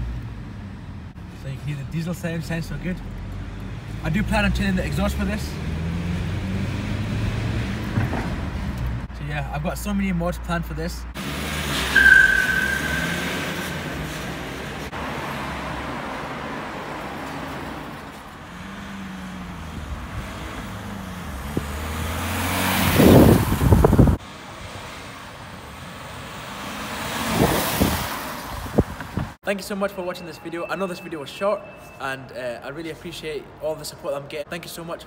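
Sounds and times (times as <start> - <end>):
road and traffic noise: 0.0 - 35.0
brief high whistle: 11.9 - 13.8.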